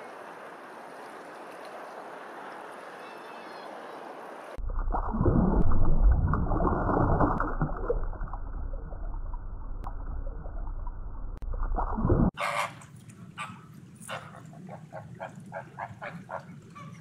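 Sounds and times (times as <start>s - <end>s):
open water wash: 0.0s - 8.0s, 12.3s - 17.0s
aquarium water gurgling and bubbling: 4.5s - 12.4s.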